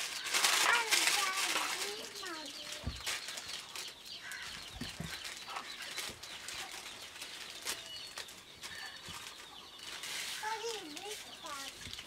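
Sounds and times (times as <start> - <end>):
birds chirping: 0.0 - 12.0
small clicks and rustles: 0.0 - 12.0.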